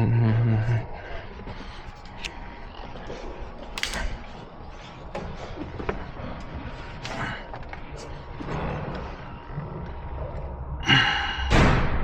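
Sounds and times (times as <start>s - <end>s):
tools clicking and knocking: 3.8s - 4.1s.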